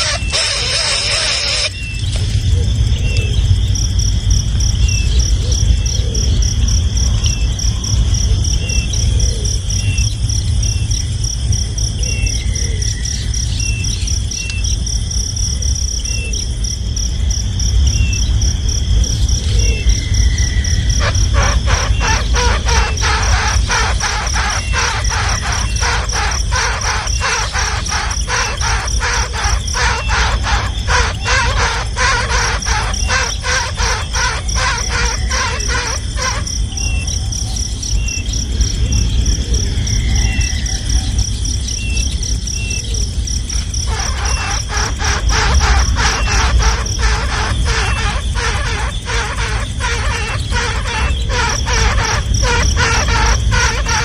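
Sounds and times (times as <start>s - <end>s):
young birds calling harshly: 0.0s - 2.1s, 19.5s - 37.1s, 43.8s - 54.0s
pulsing high insect-like trill: 0.0s - 2.2s, 19.8s - 38.3s, 43.4s - 54.0s.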